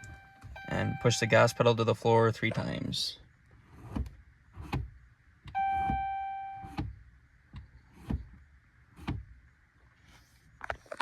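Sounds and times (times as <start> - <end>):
dashboard chime: 0.0 - 1.8, 5.6 - 6.7.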